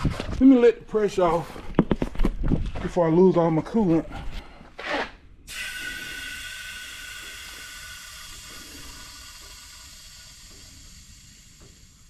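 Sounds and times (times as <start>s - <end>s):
pressurised air hissing from valve: 5.5s - 12.0s.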